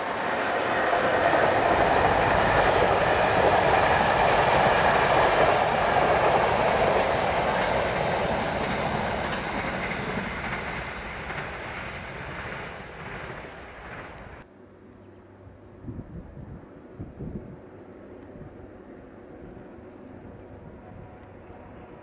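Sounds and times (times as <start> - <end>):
train wheels rushing on track: 0.0 - 14.5.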